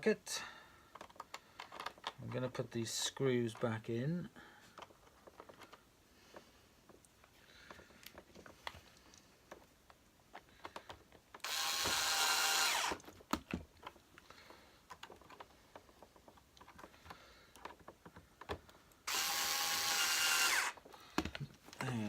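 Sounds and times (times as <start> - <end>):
clicks and knocks of parts: 0.8 - 2.2, 4.6 - 19.3, 19.9 - 22.0
power screwdriver running: 11.4 - 13.0, 19.1 - 20.8.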